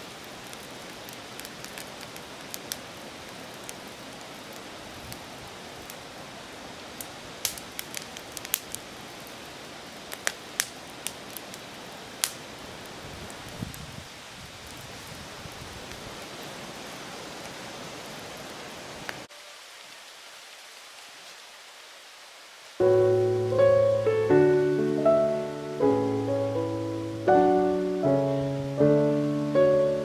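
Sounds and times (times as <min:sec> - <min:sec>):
campfire crackling and popping: 0:00.0 - 0:06.2, 0:06.8 - 0:13.8, 0:22.8 - 0:30.0.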